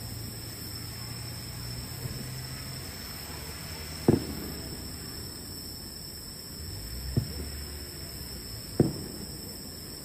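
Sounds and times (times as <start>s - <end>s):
firework shells bursting: 4.0s - 5.0s, 8.7s - 9.7s.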